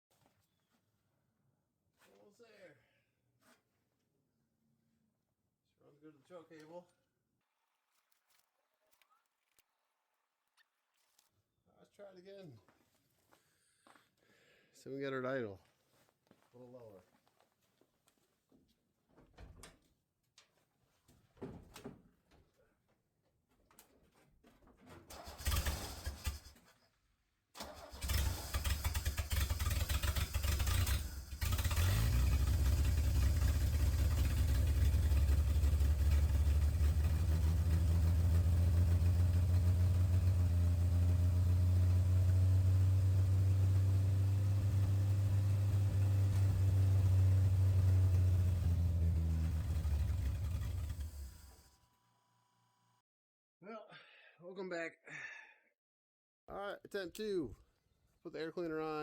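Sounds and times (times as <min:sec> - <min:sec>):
engine cranking: 0:25.1 - 0:26.6, 0:27.6 - 0:51.6
engine idling: 0:27.7 - 0:51.7.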